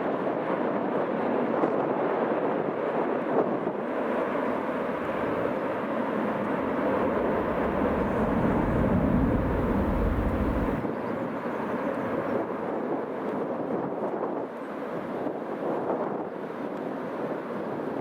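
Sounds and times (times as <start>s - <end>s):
strong wind: 0.0s - 18.0s
aircraft engines rushing: 4.4s - 10.9s
deep rumble: 6.4s - 10.8s.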